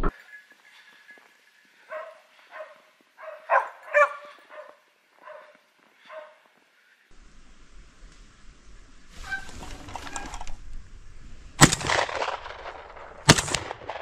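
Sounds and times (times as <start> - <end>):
dog barking: 1.9 - 6.4.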